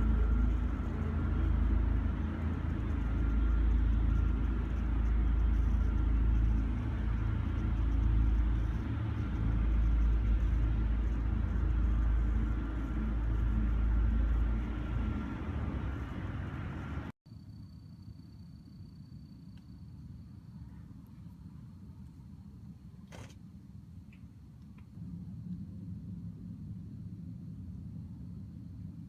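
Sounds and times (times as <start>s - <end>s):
deep rumbling drone: 0.0s - 17.2s, 23.8s - 29.0s.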